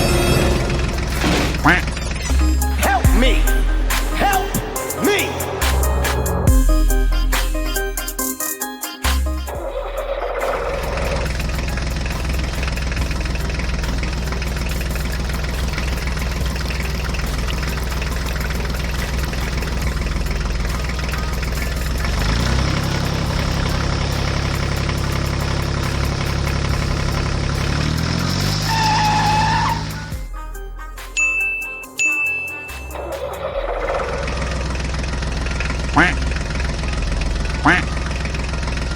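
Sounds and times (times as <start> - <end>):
engine droning: 0.0 - 8.1, 9.3 - 30.2, 32.9 - 38.9
whistle-like tone: 28.4 - 34.7.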